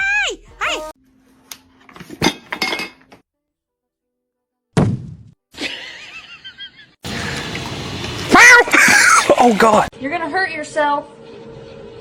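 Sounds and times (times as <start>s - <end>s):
hard objects clinking and knocking: 2.1s - 3.1s
loud thud: 4.8s - 5.4s.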